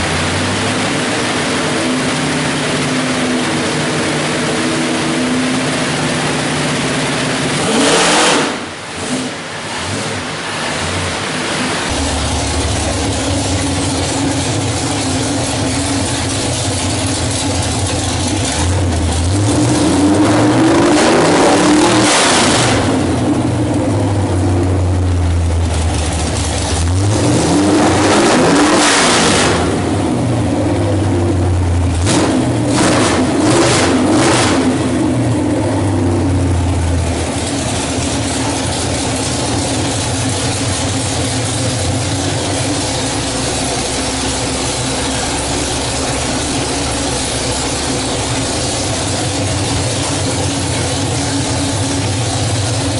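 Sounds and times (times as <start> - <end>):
engine revving: 0.0 - 52.9.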